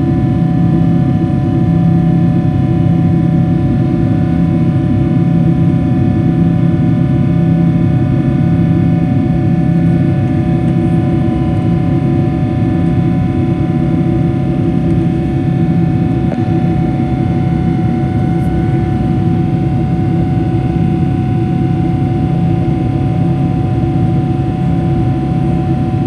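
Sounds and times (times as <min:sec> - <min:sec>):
jet engine roar in cabin: 0:00.0 - 0:26.0
steady whining tones: 0:08.1 - 0:26.0.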